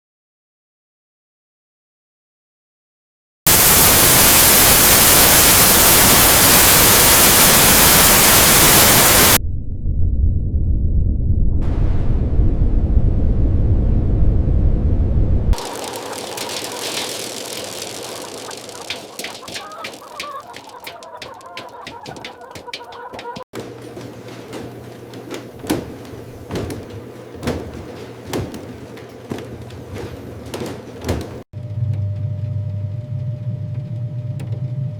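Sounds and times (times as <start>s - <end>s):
factory machinery humming: 3.5s - 9.4s, 15.6s - 21.0s
static hiss: 3.5s - 9.4s, 15.6s - 20.6s
low rumble: 9.4s - 15.6s
regular machine knock: 15.6s - 31.4s.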